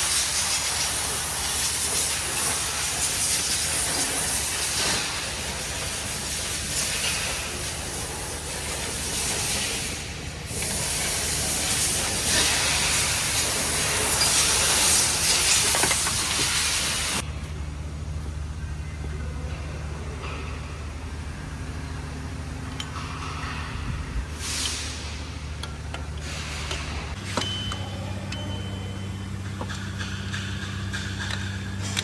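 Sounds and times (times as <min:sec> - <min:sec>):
loud steady hissing: 0:00.0 - 0:17.3
low mechanical hum: 0:00.0 - 0:32.0.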